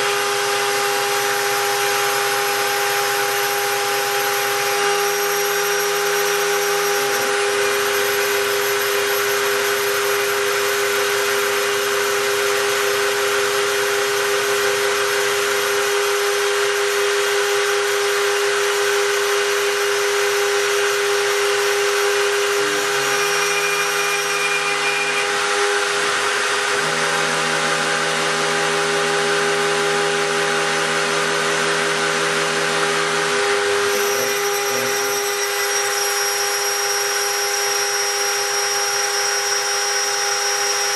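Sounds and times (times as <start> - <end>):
milling spindle whine: 0.0 - 40.9
low motor tones: 20.9 - 35.9.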